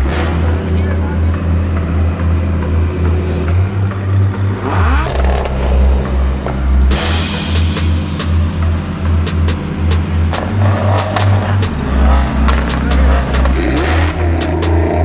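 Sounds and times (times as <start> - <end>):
sports car engine revving: 0.0 - 15.0
exhaust burst: 6.9 - 15.0.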